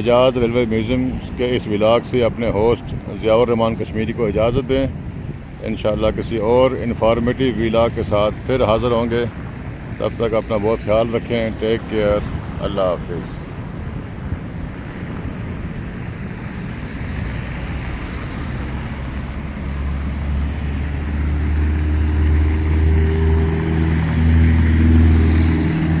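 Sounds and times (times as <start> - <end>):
traffic noise: 0.0 - 26.0
vehicle engine running: 16.0 - 26.0.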